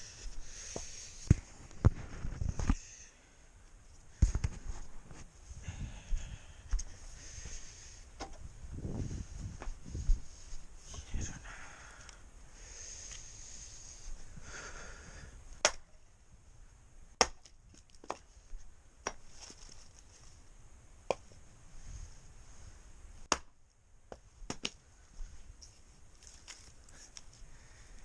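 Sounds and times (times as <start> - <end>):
firewood snapping and knocking: 15.6 - 16.0, 17.2 - 18.3, 19.0 - 19.3, 23.3 - 24.8.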